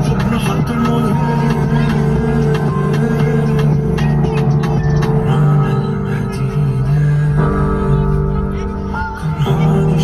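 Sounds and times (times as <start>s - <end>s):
song with held low notes: 0.0s - 10.0s.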